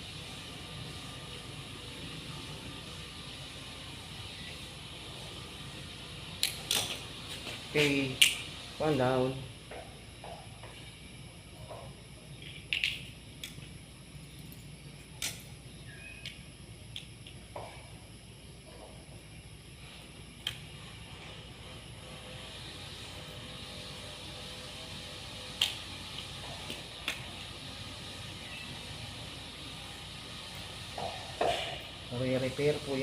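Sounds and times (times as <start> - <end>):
steady hiss: 0.0 - 33.0
steady low hum: 0.0 - 33.0.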